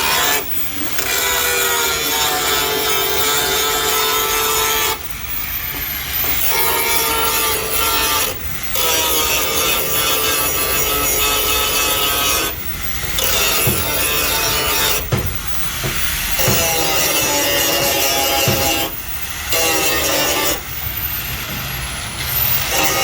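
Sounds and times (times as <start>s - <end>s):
power tool sanding: 0.0s - 23.0s.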